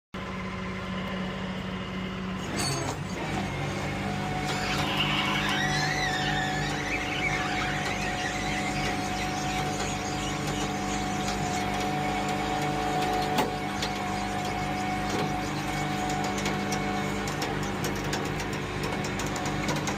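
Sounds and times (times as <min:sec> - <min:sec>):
vehicle engine humming: 0:00.2 - 0:19.9
high wavering squeal: 0:02.4 - 0:17.3.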